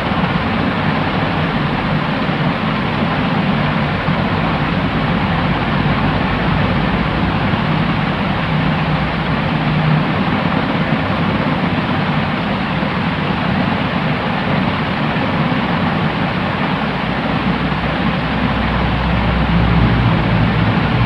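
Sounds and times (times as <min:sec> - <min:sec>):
white noise hiss: 0:00.0 - 0:21.0
low rumble: 0:18.3 - 0:21.0.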